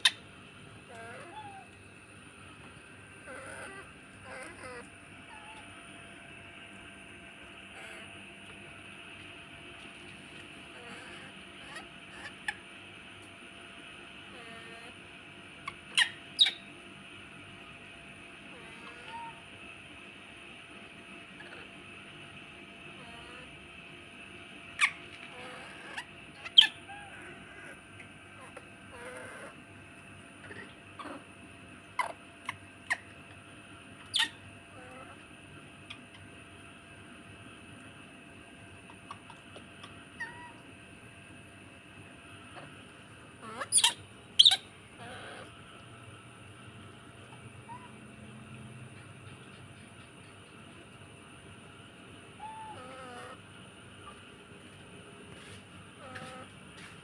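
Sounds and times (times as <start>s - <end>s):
baby monkey squeaks: 15.7s - 16.7s, 24.8s - 27.2s, 34.0s - 34.4s, 43.4s - 45.4s.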